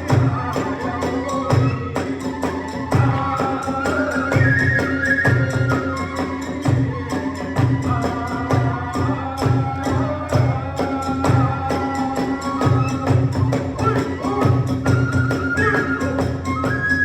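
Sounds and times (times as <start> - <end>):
bamboo flute melody: 0.0 - 17.0.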